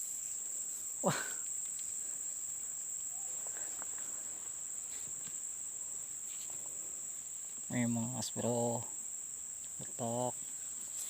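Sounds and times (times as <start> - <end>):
high-pitched insect chorus: 0.0 - 11.0
faint small ticks: 0.7 - 2.2.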